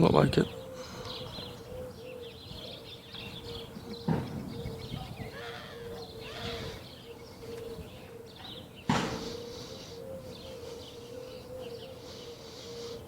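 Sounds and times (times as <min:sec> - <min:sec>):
small birds chirping: 0:00.0 - 0:13.0
sharp knock: 0:08.9 - 0:09.2.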